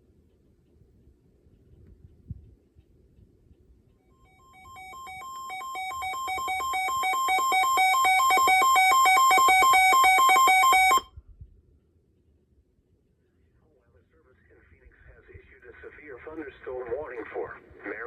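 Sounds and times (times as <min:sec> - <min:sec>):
two-pitch electronic alert tone: 0:04.2 - 0:11.1.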